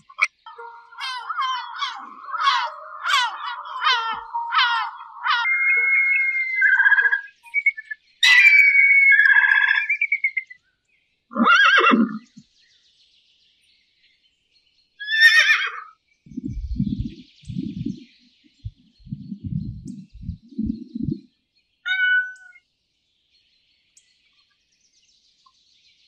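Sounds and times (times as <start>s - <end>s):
eagle yelping calls: 0.0s - 10.5s, 11.3s - 12.3s, 15.0s - 15.9s, 21.9s - 22.6s
horse whinny: 11.3s - 12.2s
low pulses: 16.3s - 21.3s.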